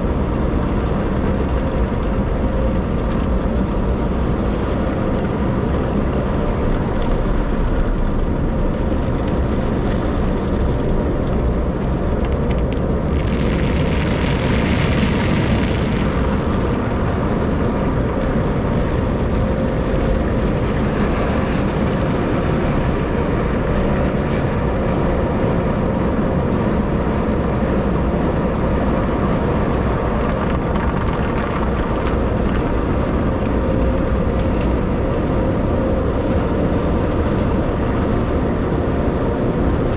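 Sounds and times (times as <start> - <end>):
car wash machinery roaring: 0.0 - 39.9
faint steady hum: 0.0 - 39.9.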